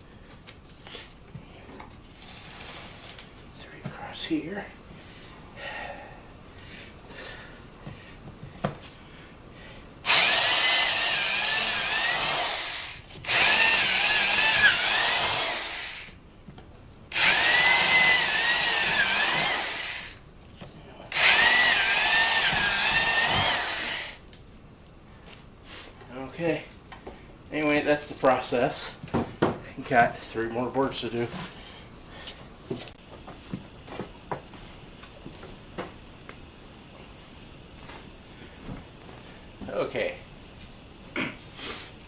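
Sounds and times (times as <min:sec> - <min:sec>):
electric drill boring plywood: 0:10.1 - 0:16.2, 0:17.1 - 0:20.2, 0:21.1 - 0:24.2.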